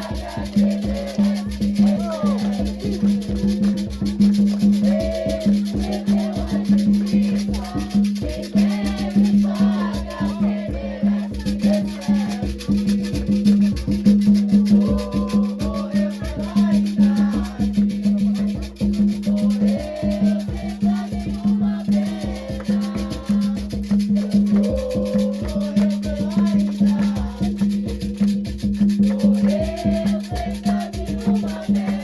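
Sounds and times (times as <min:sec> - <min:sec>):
hand drums beating: 0:00.0 - 0:32.0
shaker: 0:00.0 - 0:32.0
voices singing a chant: 0:00.0 - 0:32.0.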